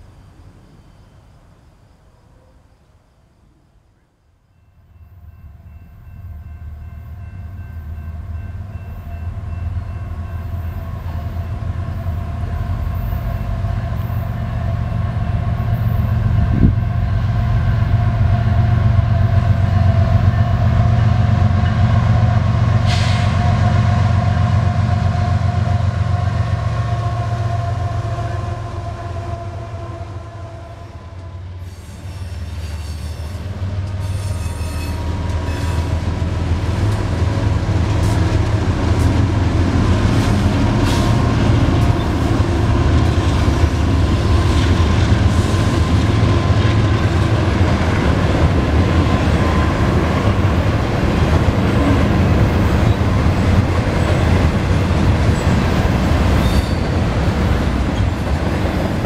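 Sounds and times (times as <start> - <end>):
diesel locomotive engine rumble: 3.8 - 59.0
train horn long tones: 4.6 - 59.0
rattle and rush of train wheels: 31.0 - 59.0.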